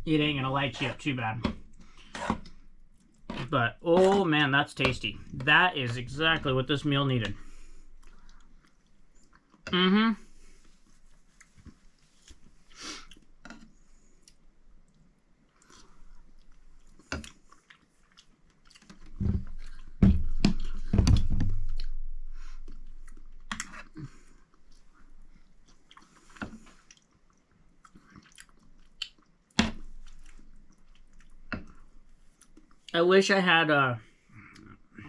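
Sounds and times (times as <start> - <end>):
person chewing noodles: 7.5 - 9.7, 10.4 - 20.0, 21.7 - 32.9, 34.3 - 35.0.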